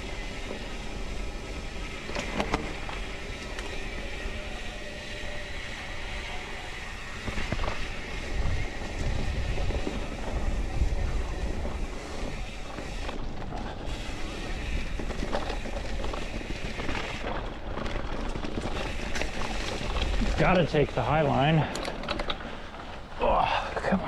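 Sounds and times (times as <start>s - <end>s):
mountain bike riding dirt trail: 0.0s - 24.0s
wind buffeting microphone: 6.9s - 13.0s.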